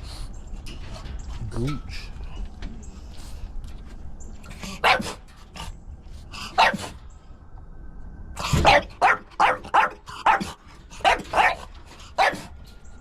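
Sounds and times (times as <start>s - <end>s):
dog barking: 4.8s - 5.2s, 6.6s - 6.9s, 8.6s - 12.5s.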